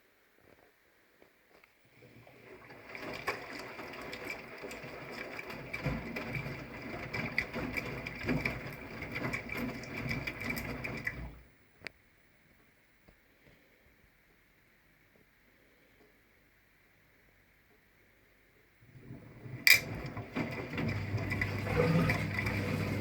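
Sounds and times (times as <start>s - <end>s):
water sloshing and splashing: 2.0s - 11.4s, 18.9s - 23.0s
washing machine drum turning: 2.7s - 11.4s, 19.0s - 23.0s.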